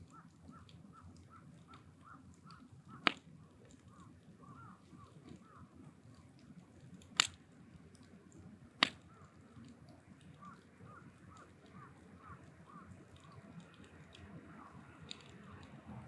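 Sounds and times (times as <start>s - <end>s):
bird calling: 0.0s - 6.0s, 8.8s - 9.6s, 10.3s - 13.7s, 14.4s - 15.7s
firewood cracking: 0.0s - 15.8s.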